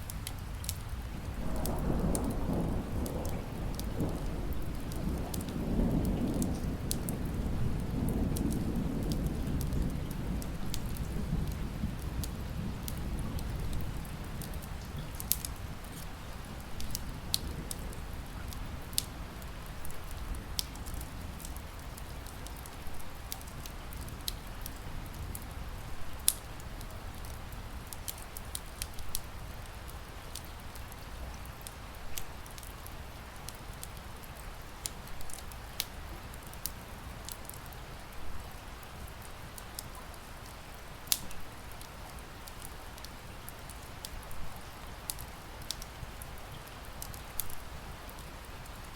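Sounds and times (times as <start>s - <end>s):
rain hissing: 0.0s - 48.9s
wood fire crackling and popping: 0.0s - 48.9s.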